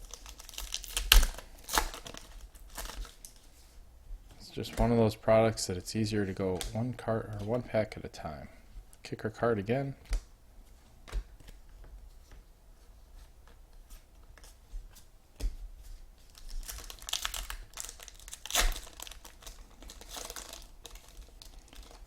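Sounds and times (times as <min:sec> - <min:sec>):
card wrappers tearing and crinkling: 0:00.0 - 0:03.4, 0:16.2 - 0:22.0.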